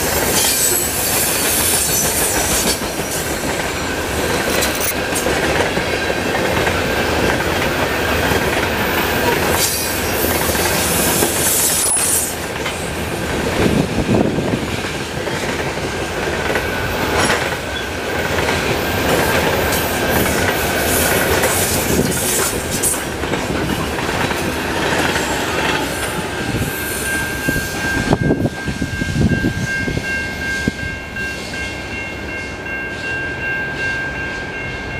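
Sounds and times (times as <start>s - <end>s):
high wheel squeal: 0.0s - 5.3s, 9.2s - 12.4s
freight train rumbling past: 0.0s - 34.9s
high steady tones: 18.8s - 34.9s.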